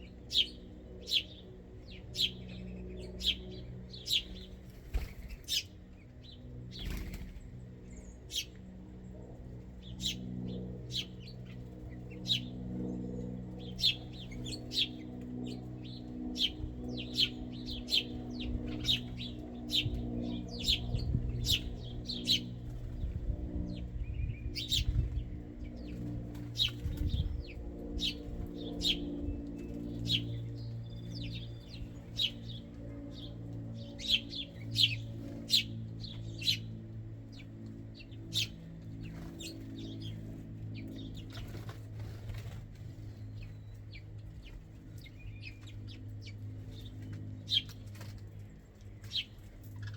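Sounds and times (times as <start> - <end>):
birds chirping: 0.0 - 49.9
steady low hum: 0.0 - 49.9
wings fluttering: 4.0 - 7.6, 13.5 - 30.4, 37.3 - 49.9.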